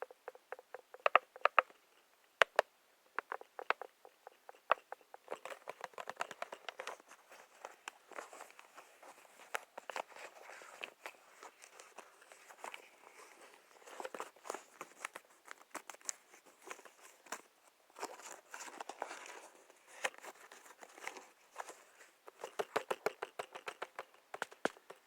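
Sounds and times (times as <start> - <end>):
soft rustling and crinkling: 0.0 - 25.0
light taps and clicks: 20.0 - 25.0.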